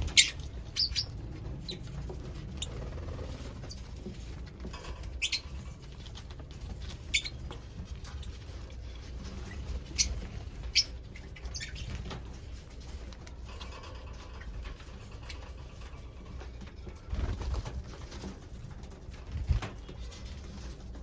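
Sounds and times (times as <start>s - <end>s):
lovebirds calling: 0.0s - 4.0s, 5.1s - 5.7s, 6.7s - 12.3s
wing flutter: 0.0s - 21.0s.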